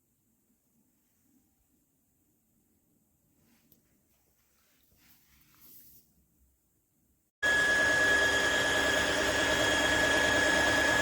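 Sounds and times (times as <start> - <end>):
vacuum motor high whine: 7.4 - 11.0.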